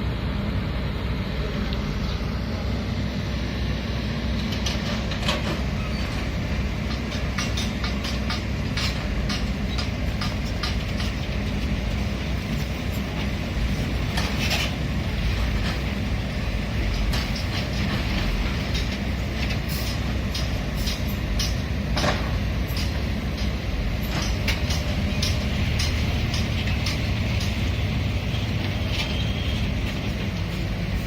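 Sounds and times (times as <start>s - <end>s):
diesel machinery rumbling: 0.0s - 31.0s
metallic clanks and knocks: 4.5s - 11.7s, 16.8s - 27.8s.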